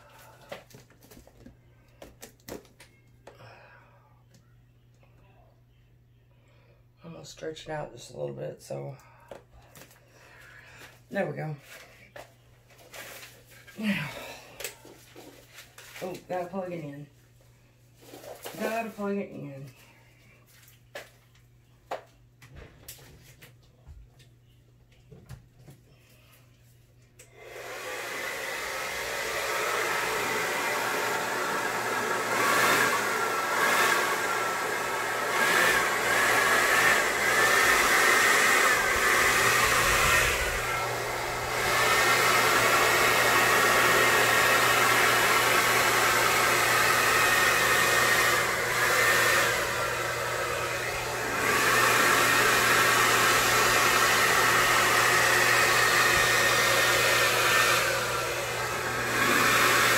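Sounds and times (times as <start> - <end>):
hair dryer blowing: 0.0 - 0.8, 10.6 - 11.8, 12.9 - 15.4, 18.0 - 19.7, 27.2 - 59.9.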